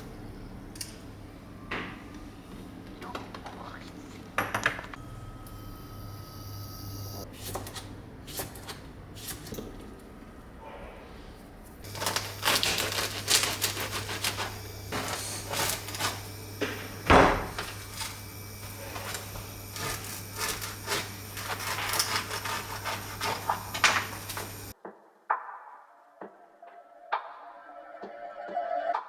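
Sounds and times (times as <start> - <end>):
steady low hum: 8.8 - 24.8.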